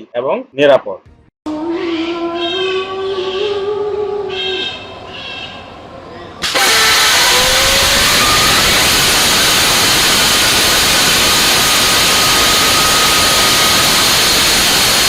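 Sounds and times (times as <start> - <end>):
rocket engine roaring: 6.4 - 15.0.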